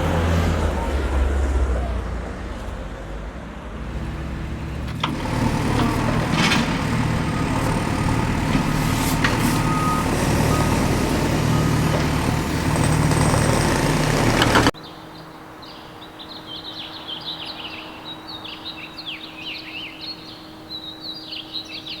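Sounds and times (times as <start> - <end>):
truck engine running: 3.6 - 14.8
birds chirping: 3.8 - 22.0
reversing beep: 5.8 - 12.3.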